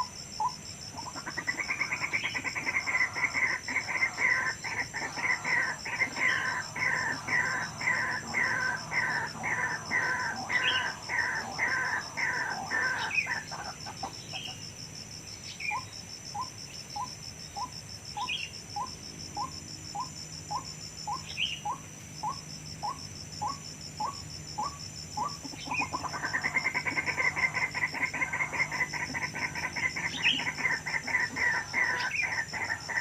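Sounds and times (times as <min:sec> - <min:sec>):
high pulsing buzz: 0:00.0 - 0:33.0
waterhens calling: 0:01.0 - 0:14.4, 0:25.2 - 0:33.0.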